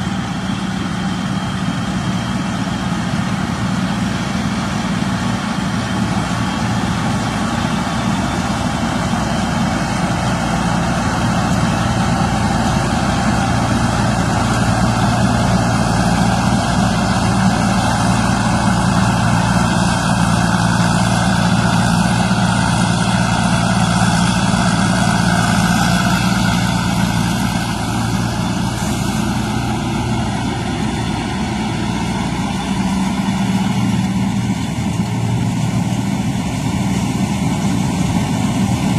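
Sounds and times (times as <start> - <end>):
combine harvester engine hum: 0.0 - 38.9.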